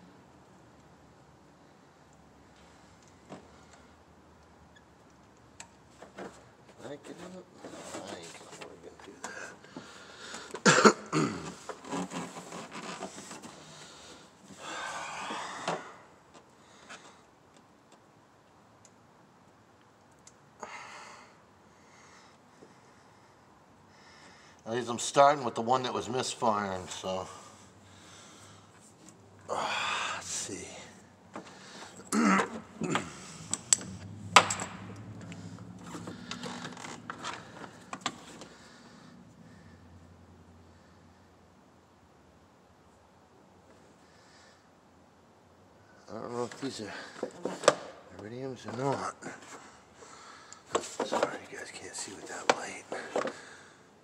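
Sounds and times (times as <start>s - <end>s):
hand tools clicking and knocking: 32.4s - 35.1s.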